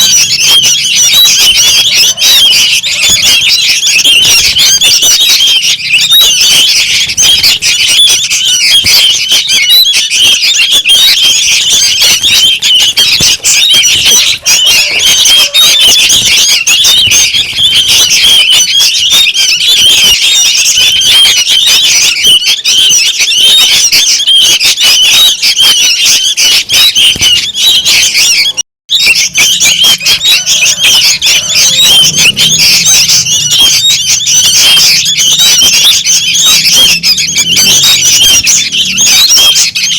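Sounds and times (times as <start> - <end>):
young birds chirping: 0.0 - 39.9.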